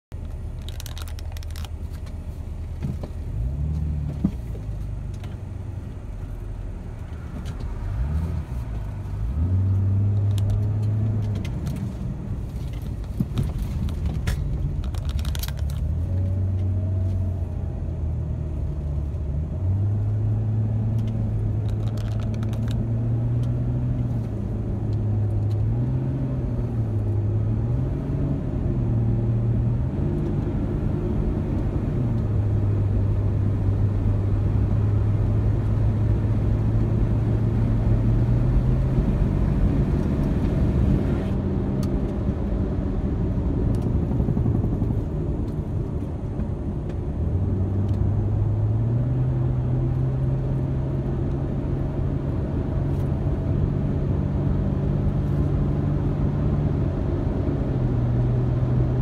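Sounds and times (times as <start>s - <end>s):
tyre and road noise: 0.1s - 59.0s
light clicks and rattles: 0.2s - 2.2s, 12.5s - 16.7s, 21.0s - 22.8s.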